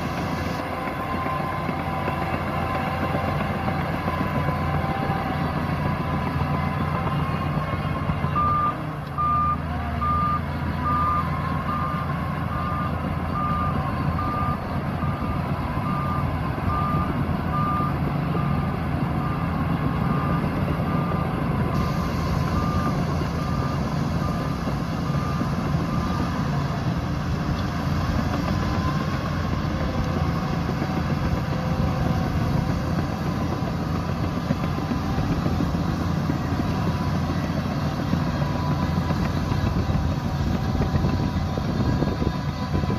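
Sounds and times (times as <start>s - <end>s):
reversing alarm beeping: 0.0s - 27.3s
bulldozer diesel engine running: 0.0s - 42.9s.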